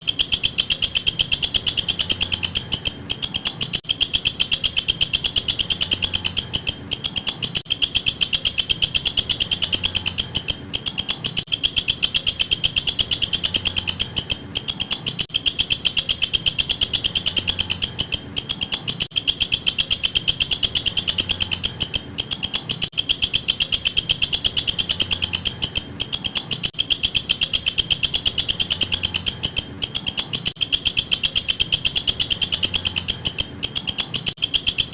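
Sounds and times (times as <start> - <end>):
insect high-pitched pulsing trill: 0.0 - 34.9.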